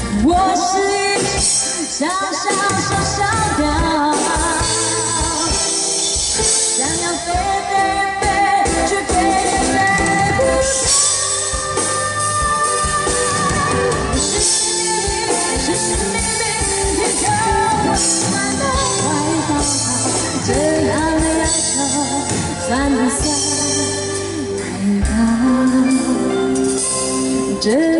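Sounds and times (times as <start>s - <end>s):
drum kit and cymbals: 0.0s - 27.9s
guitar: 0.0s - 27.9s
person singing: 6.5s - 27.9s.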